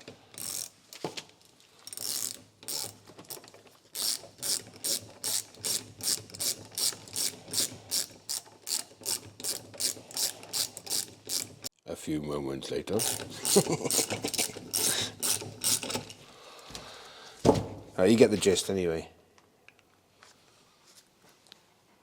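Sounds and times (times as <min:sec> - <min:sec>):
ratchet wrench clicking: 0:00.3 - 0:01.0, 0:01.8 - 0:11.7, 0:13.0 - 0:16.2.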